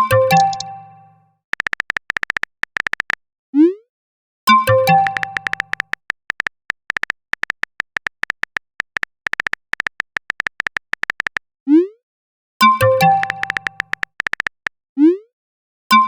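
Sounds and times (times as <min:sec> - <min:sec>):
phone keyboard typing clicks: 0:00.3 - 0:00.7, 0:01.5 - 0:03.2, 0:04.7 - 0:11.4, 0:12.8 - 0:14.8.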